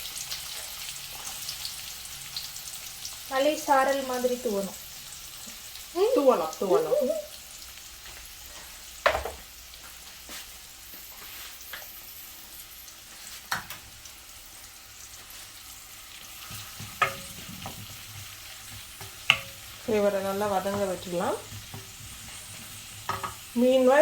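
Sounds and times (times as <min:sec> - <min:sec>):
onion sizzling in hot oil: 0:00.0 - 0:24.0
utensil knocking against pan: 0:09.0 - 0:09.4, 0:16.5 - 0:19.7, 0:20.3 - 0:22.2, 0:23.0 - 0:23.4.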